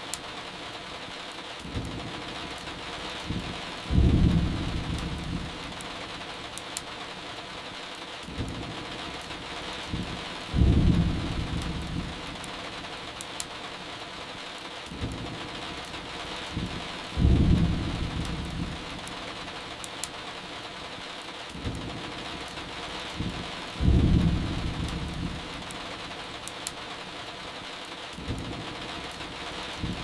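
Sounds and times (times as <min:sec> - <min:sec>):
steady rain: 0:00.0 - 0:30.0
firewood crackling: 0:01.5 - 0:07.4
low thunder rumble: 0:03.3 - 0:05.8, 0:09.9 - 0:12.4, 0:16.5 - 0:19.0, 0:23.2 - 0:25.6.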